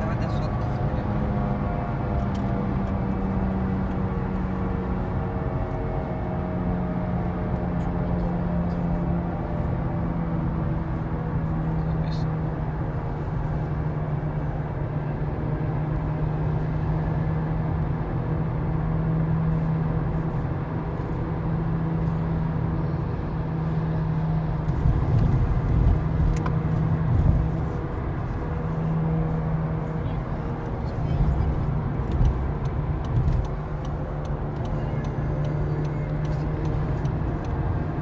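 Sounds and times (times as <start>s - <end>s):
road noise: 0.0s - 38.0s
low rumbles: 30.1s - 38.0s.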